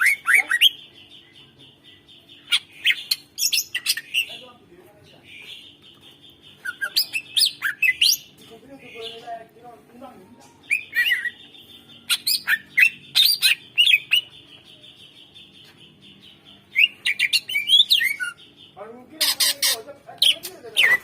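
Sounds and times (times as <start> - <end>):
harsh rasping bird calls: 0.0 - 9.5, 10.2 - 21.0
bird singing whistled notes: 10.6 - 18.8.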